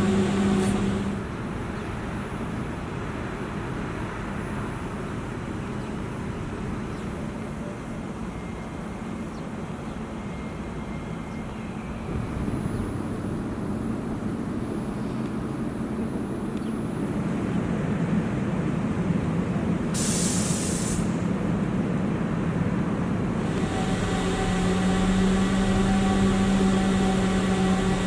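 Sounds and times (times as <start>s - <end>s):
tram low rumble: 0.0s - 28.0s
hissing burst: 23.4s - 28.0s.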